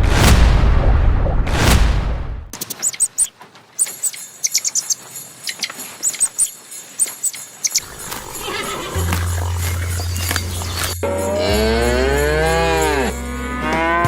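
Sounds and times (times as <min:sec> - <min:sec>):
small birds chirping: 0:02.6 - 0:11.0.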